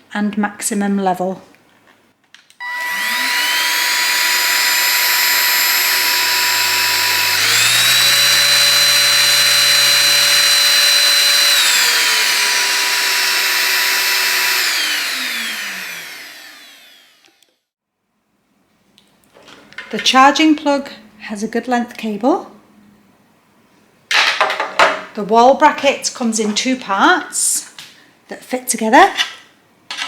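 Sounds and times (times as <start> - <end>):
stick vacuum motor whining: 2.6 - 17.5.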